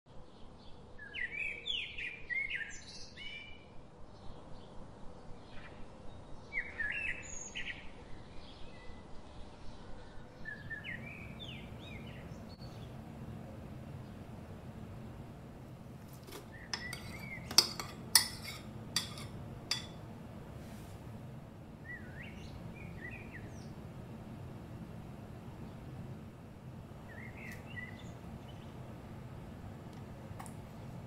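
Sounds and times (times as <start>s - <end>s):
birds chirping: 5.3s - 20.1s, 21.3s - 31.0s.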